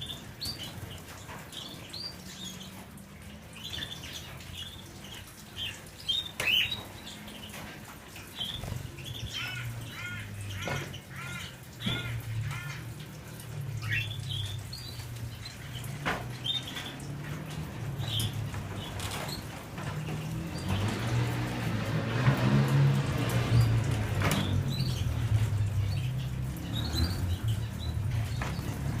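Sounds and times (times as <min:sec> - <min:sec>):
canaries chirping: 0:00.0 - 0:29.0
wing flutter rustles: 0:06.8 - 0:09.3, 0:15.0 - 0:25.8.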